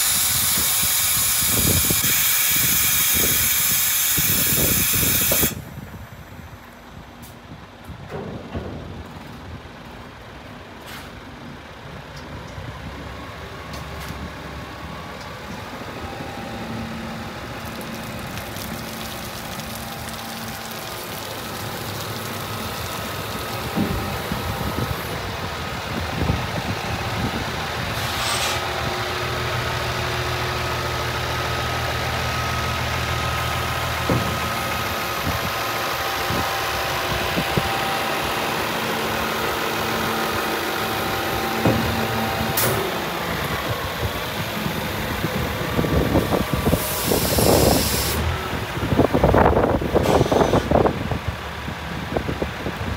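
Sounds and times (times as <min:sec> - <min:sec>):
compressed air hiss: 0:00.0 - 0:05.7, 0:28.0 - 0:28.6, 0:46.6 - 0:48.3
diesel truck engine idling: 0:05.5 - 0:52.9.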